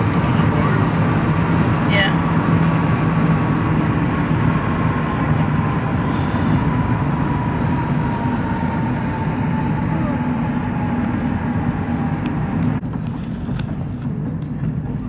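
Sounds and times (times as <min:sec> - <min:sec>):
car road and engine noise: 0:00.0 - 0:15.0
faint whine dropping in pitch: 0:02.3 - 0:15.0.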